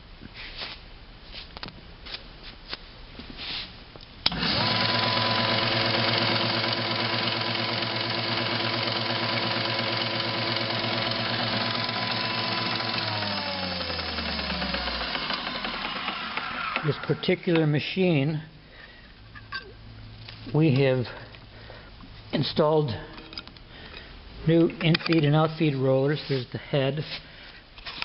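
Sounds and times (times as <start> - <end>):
planer motor whining: 4.3 - 17.6.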